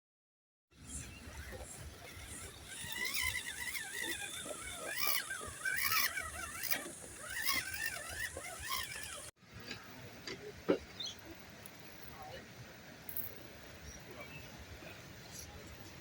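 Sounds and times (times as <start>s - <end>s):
toy car motor whining: 0.8s - 9.3s
tyres scraping on rock: 1.2s - 9.3s.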